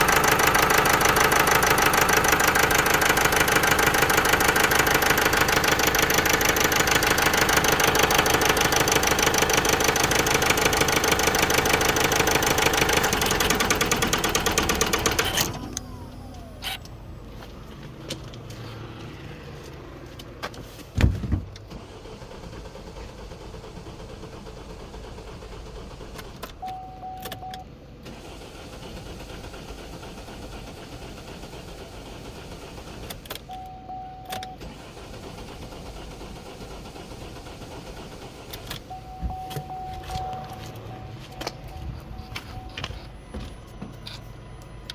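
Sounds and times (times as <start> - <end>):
diesel engine running rough: 0.0 - 20.7, 21.6 - 26.7, 27.8 - 33.4, 34.6 - 44.9
short electronic beeps: 38.9 - 44.9.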